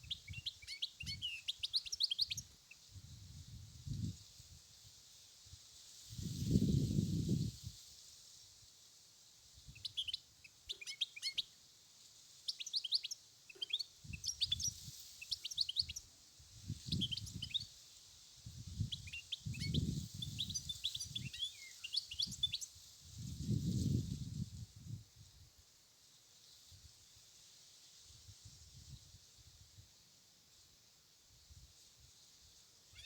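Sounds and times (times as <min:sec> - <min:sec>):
goldfinch twittering song: 0:00.0 - 0:02.8, 0:09.8 - 0:11.5, 0:12.5 - 0:16.0, 0:16.9 - 0:17.7, 0:18.8 - 0:22.7.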